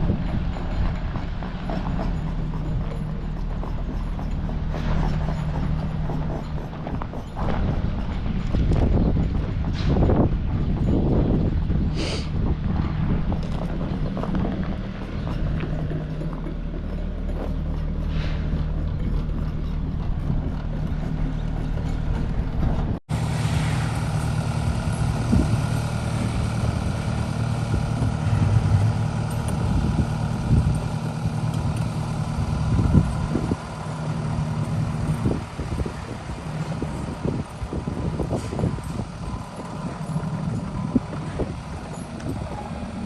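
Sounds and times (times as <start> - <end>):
clanks and knocks: 0.0 - 23.0
large engine running: 0.0 - 43.0.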